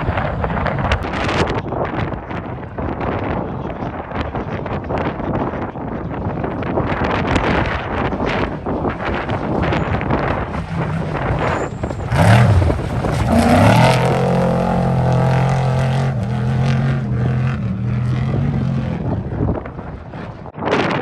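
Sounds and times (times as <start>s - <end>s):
engine revving: 9.4s - 20.5s.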